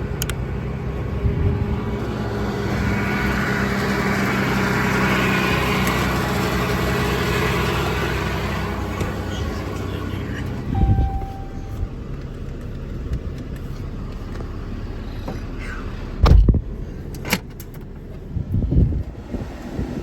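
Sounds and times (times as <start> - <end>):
vehicle rumble: 0.0 - 20.0.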